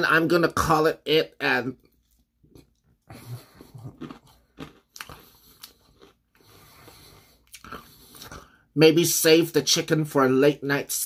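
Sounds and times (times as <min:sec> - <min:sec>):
chewing crispy fried chicken: 0:01.8 - 0:08.5.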